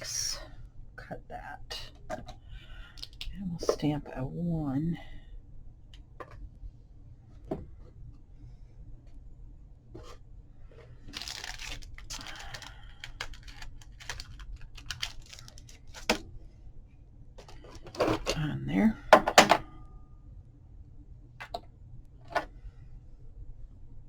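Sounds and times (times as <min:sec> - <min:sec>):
paper rustling: 0:10.8 - 0:16.2.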